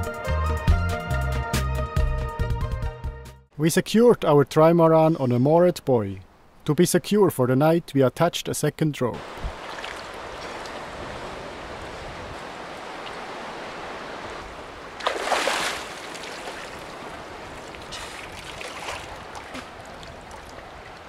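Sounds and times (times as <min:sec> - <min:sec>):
water lapping against hulls: 0:09.2 - 0:21.0.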